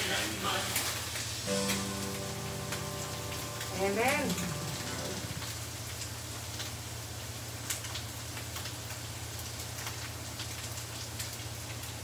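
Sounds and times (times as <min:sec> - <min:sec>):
food sizzling in oil: 0:00.0 - 0:07.6.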